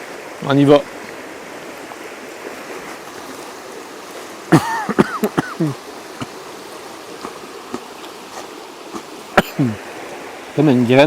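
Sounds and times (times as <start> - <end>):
man coughing and clearing throat: 4.5 - 5.8, 9.3 - 9.8.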